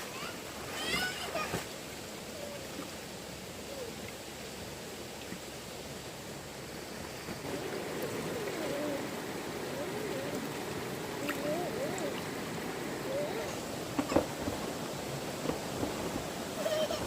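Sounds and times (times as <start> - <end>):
flowing stream water: 0.0 - 17.0
faint wavering voice-like sound: 7.4 - 13.8.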